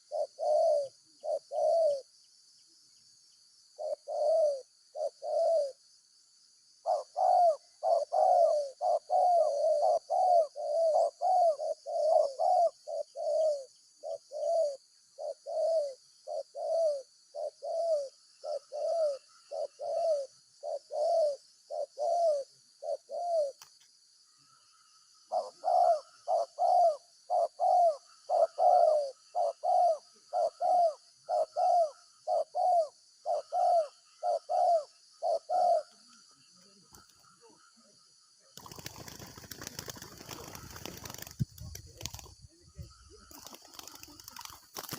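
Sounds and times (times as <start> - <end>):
dove cooing: 0.0 - 2.1, 3.8 - 5.8, 6.8 - 23.6, 25.3 - 36.2, 38.6 - 44.9.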